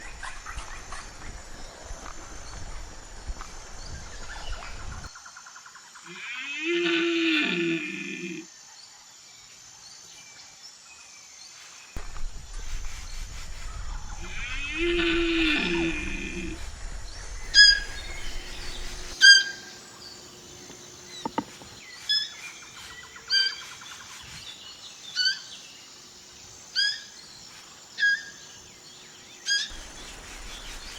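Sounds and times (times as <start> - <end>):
long drawn-out animal calls: 6.0 - 8.5, 14.2 - 16.6, 17.5 - 24.2, 25.0 - 25.7, 26.7 - 28.6
short sharp bird chirps: 17.5 - 24.5.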